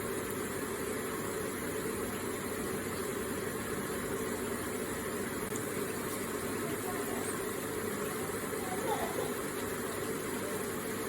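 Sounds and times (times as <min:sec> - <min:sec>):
water trickling in water feature: 0:00.0 - 0:11.0.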